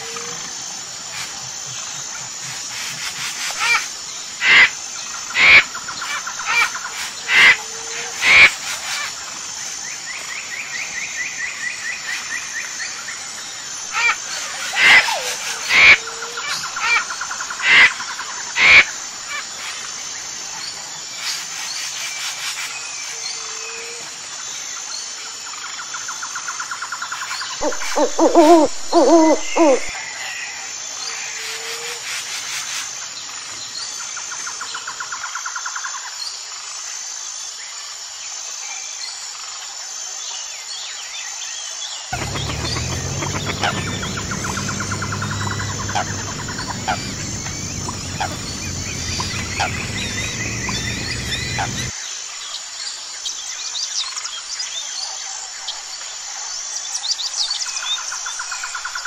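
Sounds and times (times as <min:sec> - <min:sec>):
bird trill: 0:27.6 - 0:29.9, 0:42.2 - 0:51.9
lower pitched bird call: 0:27.6 - 0:29.9, 0:42.2 - 0:51.9
sharp bird calls: 0:27.6 - 0:29.9, 0:42.2 - 0:51.9
high-pitched pulsing: 0:42.2 - 0:51.9.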